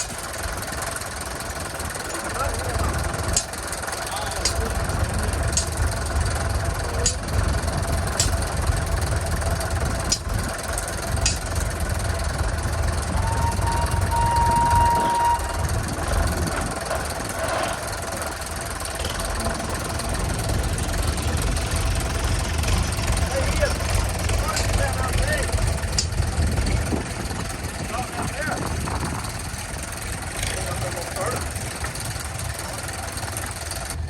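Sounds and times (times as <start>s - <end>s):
engine running with low rumble: 0.0s - 34.0s
sharp clicks: 3.3s - 3.6s, 4.4s - 4.8s, 5.5s - 5.9s, 7.0s - 7.4s, 8.1s - 8.6s, 10.1s - 11.7s, 25.9s - 26.2s
short high tone: 13.2s - 15.8s.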